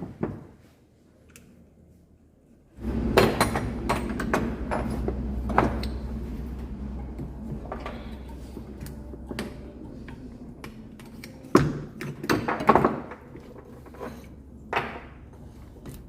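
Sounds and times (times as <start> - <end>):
steady low hum: 1.4 - 16.0
metal engine parts clattering: 2.8 - 16.0.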